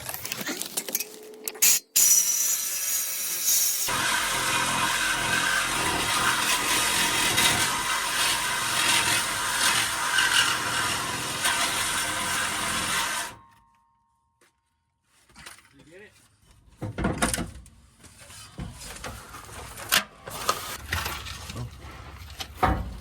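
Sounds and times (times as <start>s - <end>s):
power tool cutting exhaust pipe: 1.6s - 13.4s.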